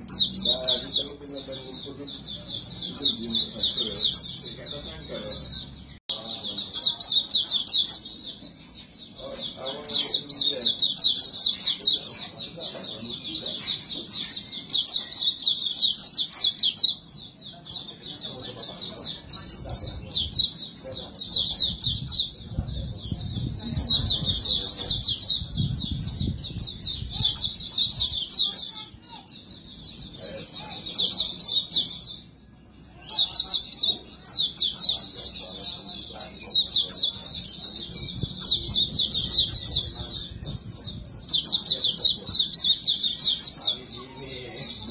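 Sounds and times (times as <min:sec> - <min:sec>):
bird twittering song: 0:00.0 - 0:44.9.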